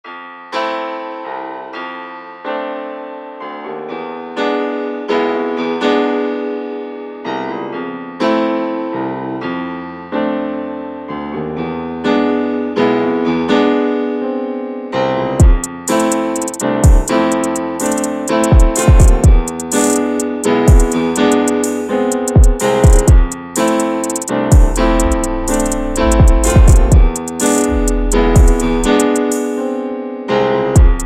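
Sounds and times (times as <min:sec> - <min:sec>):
slow piano chords: 0:10.1 - 0:31.0.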